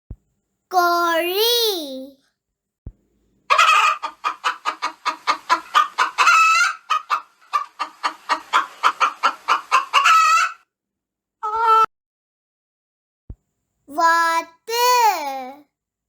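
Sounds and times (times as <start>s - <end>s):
hen clucking: 3.5s - 10.6s.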